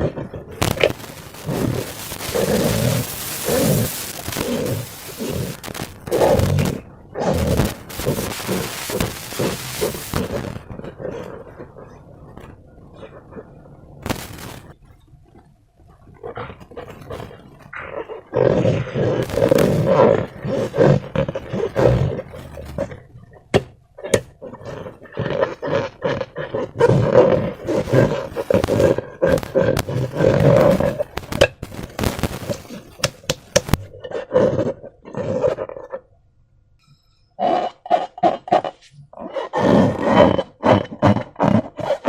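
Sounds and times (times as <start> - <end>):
wet squelching from balloon: 0.0 - 11.7
sharp clicks: 0.6 - 6.8, 27.8 - 33.9.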